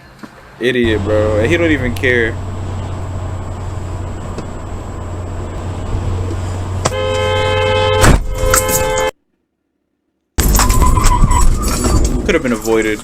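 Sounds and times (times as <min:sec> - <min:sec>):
road and engine noise: 0:00.0 - 0:09.2, 0:10.4 - 0:13.0
car horn blast: 0:06.7 - 0:09.2.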